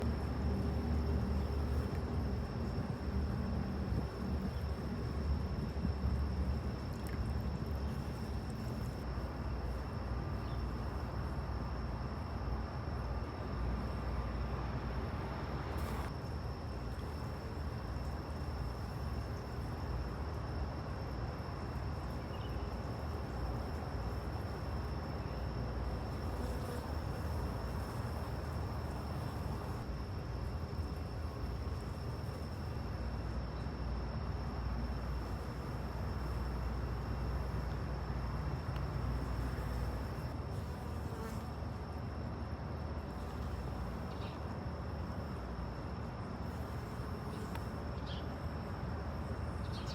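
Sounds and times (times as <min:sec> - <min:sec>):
honey bees buzzing: 0:13.1 - 0:20.1, 0:21.6 - 0:33.3.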